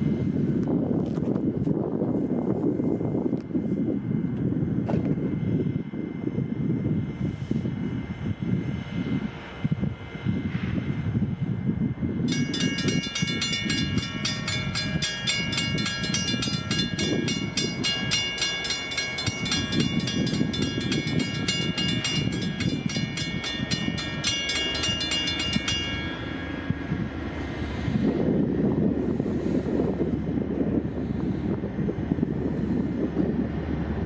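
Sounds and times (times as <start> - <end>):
train rumbling past: 1.5 - 34.0
bell ringing rapidly: 12.3 - 26.7.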